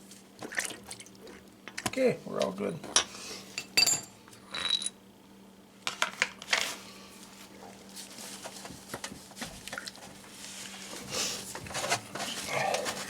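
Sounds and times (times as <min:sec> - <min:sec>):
faint steady hum: 0:00.0 - 0:13.0
metal parts clinking: 0:03.7 - 0:05.0.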